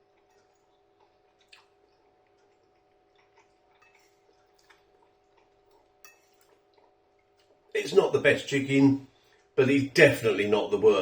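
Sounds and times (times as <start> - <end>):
person chewing food: 0.0 - 7.8
faint steady hum: 0.0 - 11.0.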